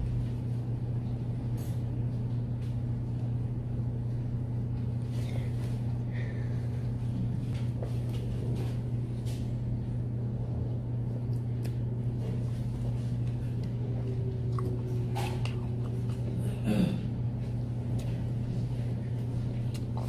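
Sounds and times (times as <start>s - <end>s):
low background hum: 0.0s - 20.0s
chewing sounds: 11.2s - 16.6s, 17.4s - 20.0s.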